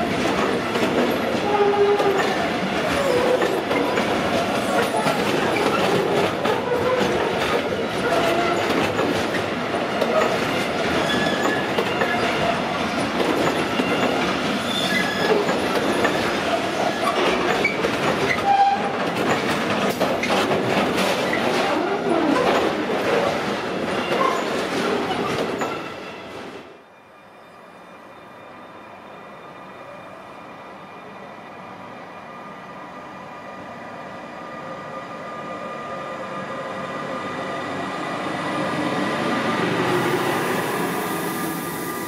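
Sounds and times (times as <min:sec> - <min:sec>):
brief wheel squeals: 0:11.0 - 0:12.4, 0:13.7 - 0:15.4.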